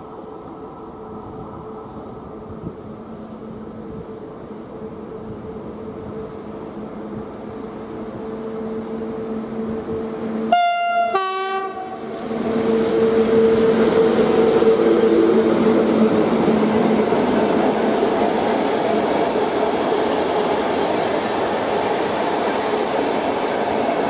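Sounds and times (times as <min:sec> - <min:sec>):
electric locomotive running hum: 0:00.0 - 0:24.0
two-tone train horn: 0:10.5 - 0:13.8.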